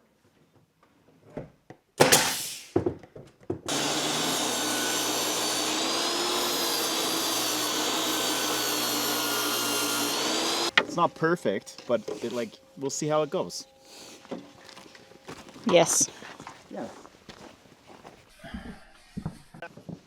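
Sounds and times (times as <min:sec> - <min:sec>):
nails knocked into wood: 0:02.0 - 0:03.0.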